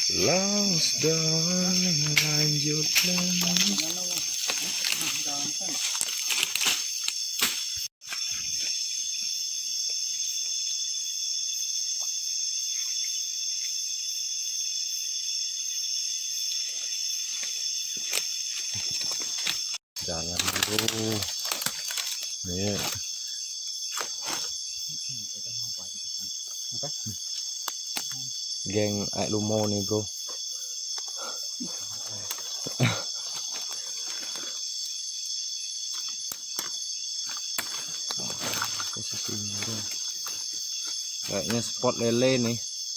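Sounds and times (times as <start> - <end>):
rustling through wet undergrowth: 0.0 - 8.9, 16.5 - 25.0, 31.2 - 35.0, 35.8 - 41.9
night insects trilling: 0.0 - 42.9.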